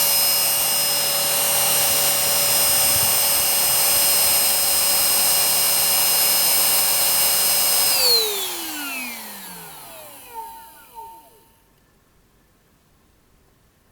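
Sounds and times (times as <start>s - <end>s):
cordless vacuum cleaner whine: 0.0s - 11.6s.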